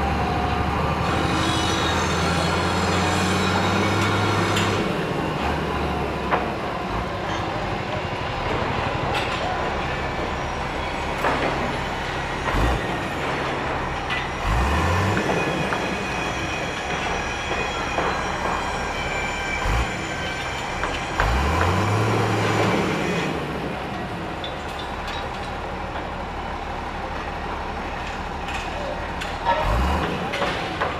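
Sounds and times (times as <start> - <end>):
heavy engine revving: 0.0 - 18.1, 19.5 - 28.4, 29.0 - 30.9
construction machinery din: 0.0 - 30.9
metallic squealing: 0.9 - 4.9, 8.2 - 20.9
metal clanks: 8.4 - 16.0.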